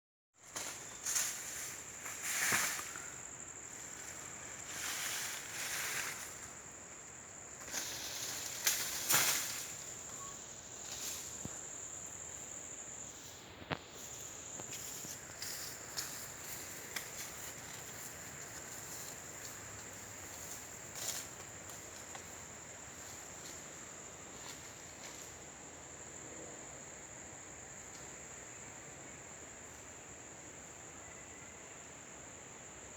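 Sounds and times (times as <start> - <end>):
insects chirring: 0.4 - 32.9
rustling: 3.7 - 6.6, 7.6 - 11.7.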